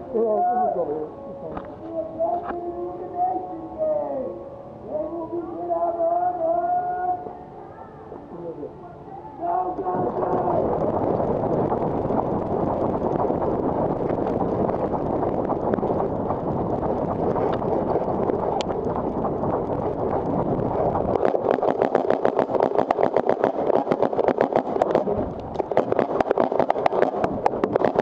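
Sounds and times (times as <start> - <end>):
steady rushing noise: 0.0 - 28.0
paintball markers firing: 21.2 - 28.0.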